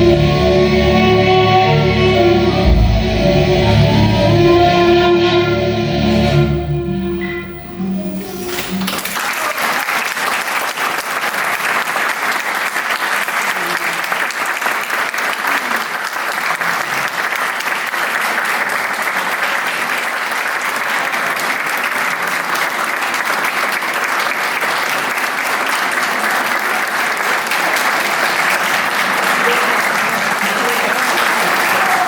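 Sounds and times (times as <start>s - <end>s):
audience applauding: 7.1s - 32.0s.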